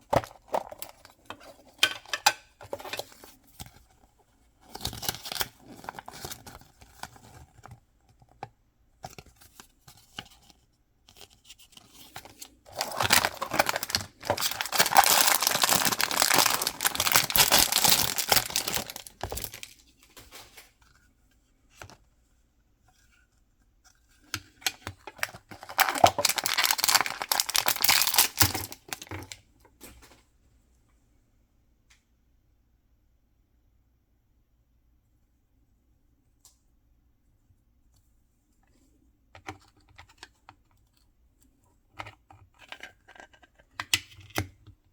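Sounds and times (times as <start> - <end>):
packaging tearing and rustling: 12.2 - 20.7, 25.1 - 29.4.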